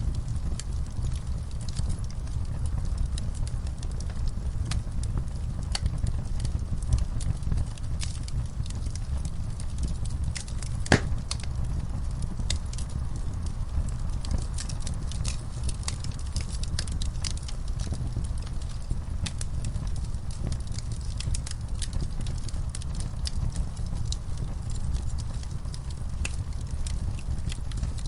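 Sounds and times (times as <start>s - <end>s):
fire crackling in fireplace: 0.0s - 28.0s.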